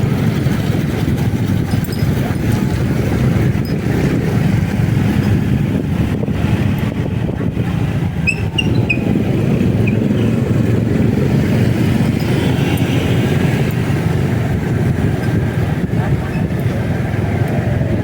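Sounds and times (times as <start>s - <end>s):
motorcycle wind and road noise: 0.0s - 18.0s.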